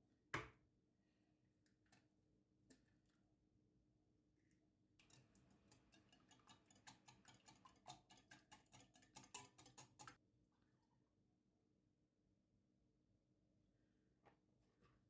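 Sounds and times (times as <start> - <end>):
light rapid clicks and taps: 5.0 - 10.2.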